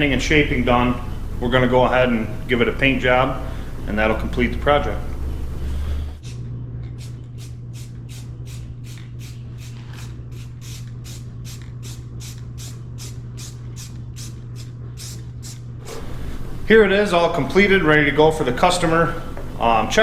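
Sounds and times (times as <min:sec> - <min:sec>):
steady low hum: 0:00.0 - 0:20.0
spray paint hissing bursts: 0:07.0 - 0:16.0.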